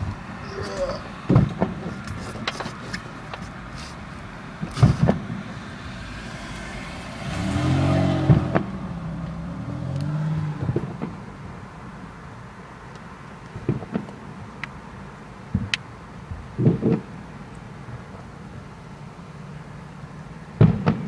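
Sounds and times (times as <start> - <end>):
vehicle engine passing: 3.6 - 11.5
fireworks bangs: 20.6 - 21.0.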